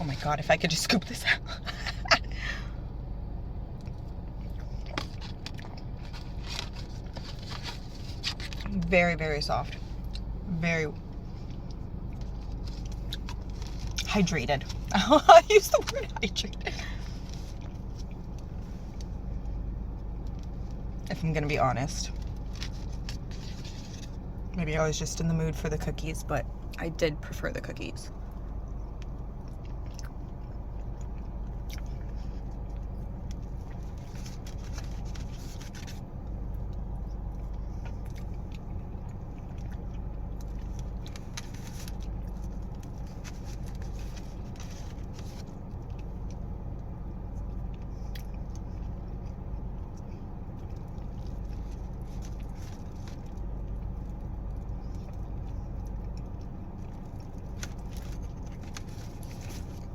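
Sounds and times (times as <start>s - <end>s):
steady low hum: 0.0s - 59.9s
clicks and scrapes of eating: 3.8s - 8.8s, 28.3s - 59.9s.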